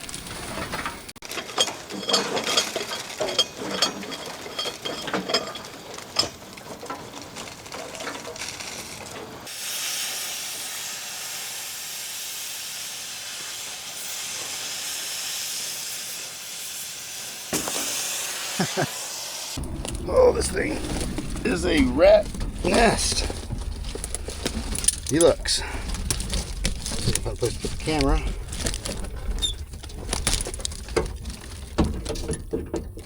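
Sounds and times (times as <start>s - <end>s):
metallic clanks and knocks: 0.6s - 7.0s, 19.6s - 33.0s
steady hiss: 9.5s - 24.2s.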